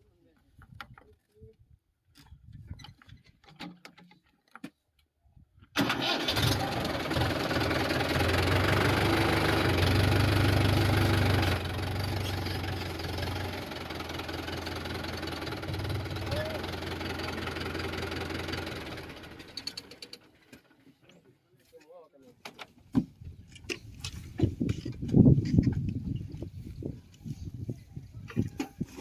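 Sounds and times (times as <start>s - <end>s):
tractor engine running: 5.8s - 20.9s.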